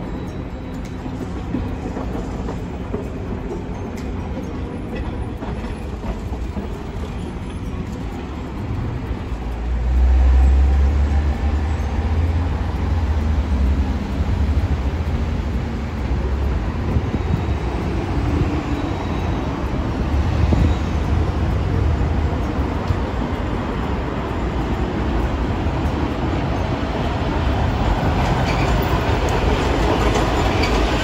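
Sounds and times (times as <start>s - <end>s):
tram running over track: 0.0s - 31.0s
low rumble of passing traffic: 6.3s - 31.0s.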